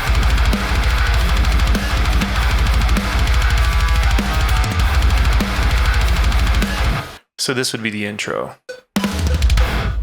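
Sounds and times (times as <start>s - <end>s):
rapid double-kick bass drums: 0.0s - 7.0s
distorted down-tuned guitars: 0.0s - 7.2s, 9.0s - 10.0s.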